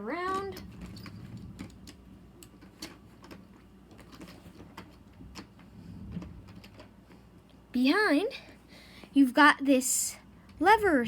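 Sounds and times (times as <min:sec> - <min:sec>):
plastic model clicking and rattling: 0:00.3 - 0:06.9.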